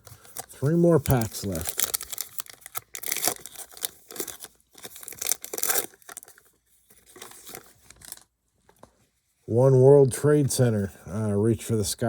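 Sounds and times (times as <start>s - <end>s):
wrapper tearing and crinkling: 0.0s - 8.3s.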